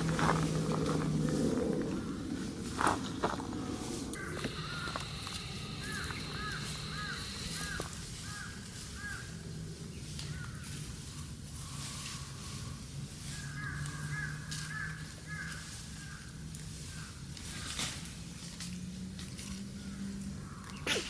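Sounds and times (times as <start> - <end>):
repeated animal calls: 0.0 - 9.3.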